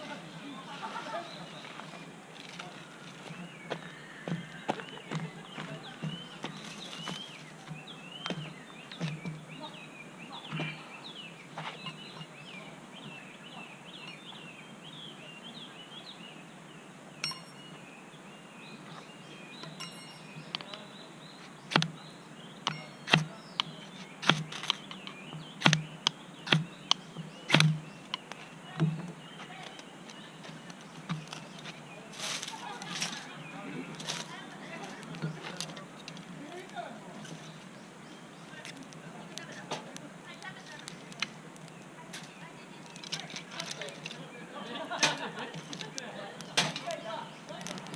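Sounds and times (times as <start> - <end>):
birds chirping: 0.0 - 47.9
sharp snaps and cracks: 38.5 - 44.2, 45.0 - 47.9.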